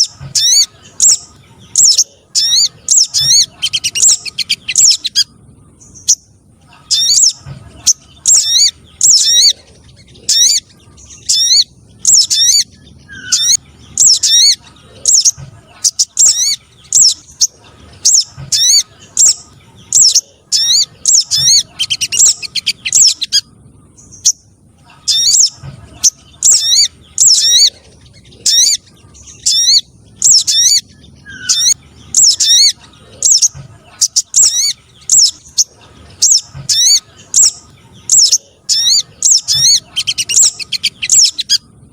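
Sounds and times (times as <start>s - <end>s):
bird chirps: 0.0s - 41.9s.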